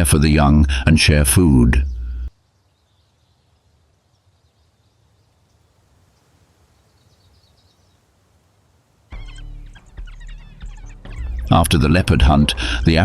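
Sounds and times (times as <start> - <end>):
low hum: 0.0 - 2.3, 9.3 - 13.0
faint high chirps: 9.1 - 11.6.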